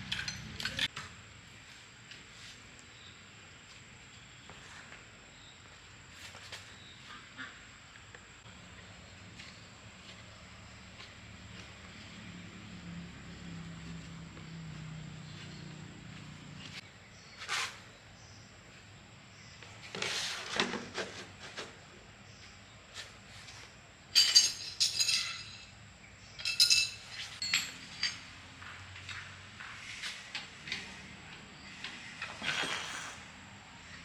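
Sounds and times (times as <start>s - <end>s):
metal tools clinking and knocking: 0.0s - 0.9s, 24.1s - 28.5s.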